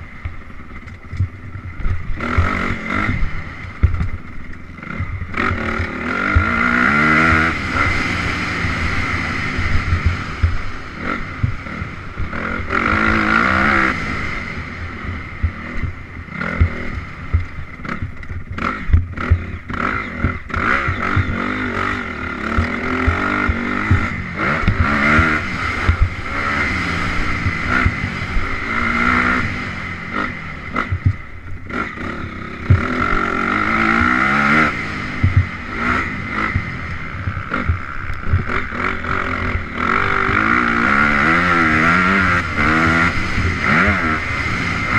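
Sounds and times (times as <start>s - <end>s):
dirt bike engine revving: 0.0s - 44.9s
low knocks and thumps: 3.8s - 4.3s, 11.3s - 12.3s, 22.5s - 26.3s, 30.8s - 31.6s, 35.2s - 35.6s.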